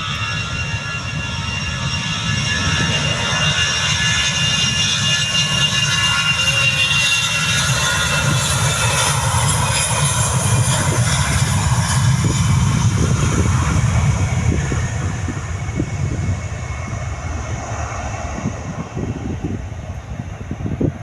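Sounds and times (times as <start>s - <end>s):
jet engines: 0.0s - 21.0s
heavy low rumble: 8.2s - 21.0s.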